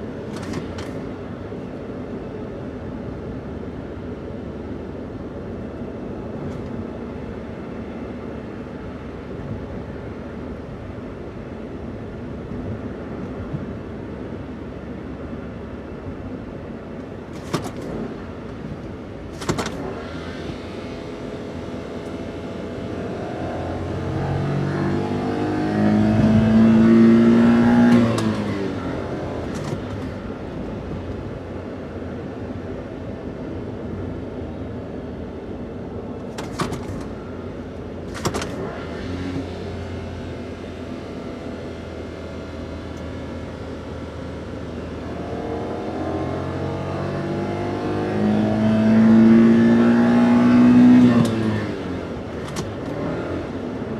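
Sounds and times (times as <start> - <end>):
van engine revving: 0.0 - 1.4, 17.1 - 32.3, 35.5 - 53.9.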